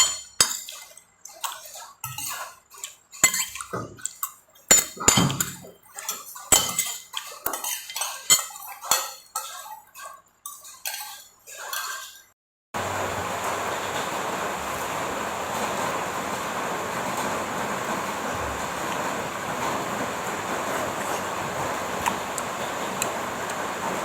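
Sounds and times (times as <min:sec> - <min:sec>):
spoon scraping a dish: 0:00.0 - 0:12.3.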